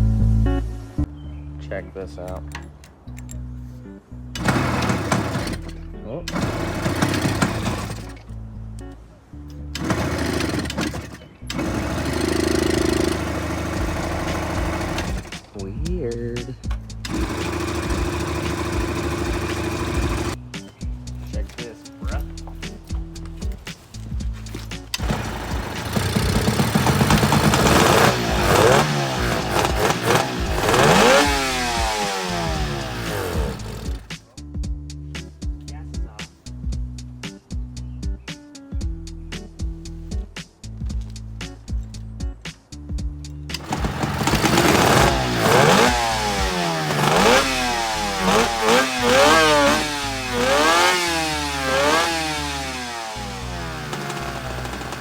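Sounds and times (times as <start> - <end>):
two-stroke motorcycle engine revving: 4.4 - 8.2, 9.8 - 16.2, 16.9 - 20.4, 24.9 - 34.2, 43.5 - 55.0.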